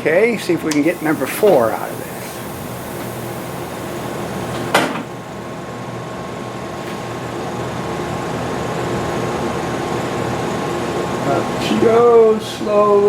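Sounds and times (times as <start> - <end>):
air hiss: 0.6 - 5.6, 6.8 - 9.1.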